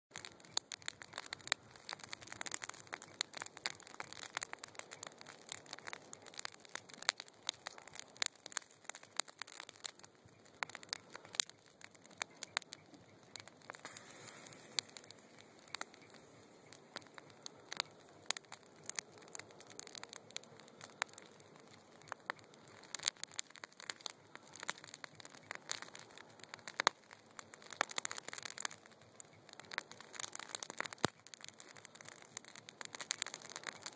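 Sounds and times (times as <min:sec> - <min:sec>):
fire pops and snaps: 0:00.1 - 0:33.9
wood fire crackling: 0:00.1 - 0:33.9
hiss of flame: 0:13.4 - 0:33.9.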